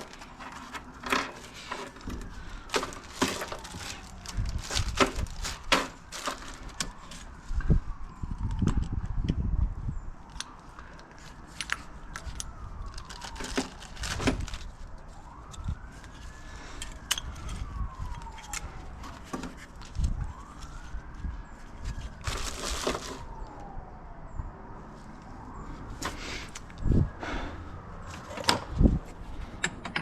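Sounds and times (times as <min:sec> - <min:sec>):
bolts and washers rattling: 0:00.0 - 0:06.8, 0:29.5 - 0:30.0
siren wailing: 0:00.0 - 0:29.4.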